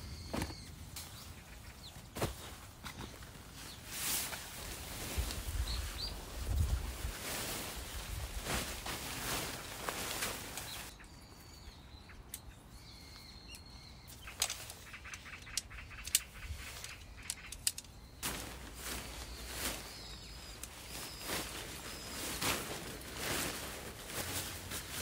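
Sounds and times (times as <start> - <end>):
birds chirping: 0.0 - 25.0
rustling: 2.1 - 10.9, 14.2 - 25.0.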